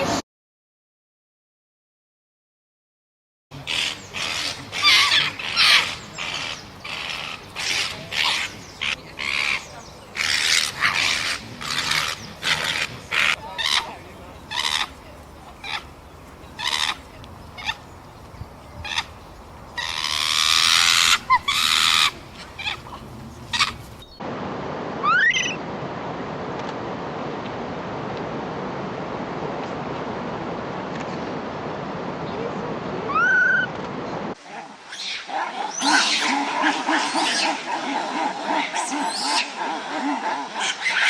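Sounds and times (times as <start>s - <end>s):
primate calling: 3.6s - 24.2s, 34.4s - 41.0s.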